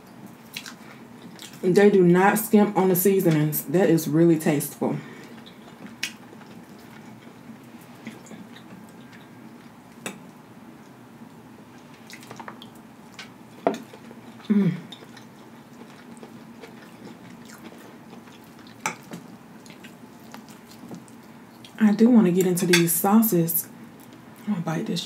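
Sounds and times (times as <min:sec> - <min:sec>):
chewing and mouth noises: 0:00.3 - 0:01.6, 0:05.2 - 0:11.0, 0:11.7 - 0:21.8.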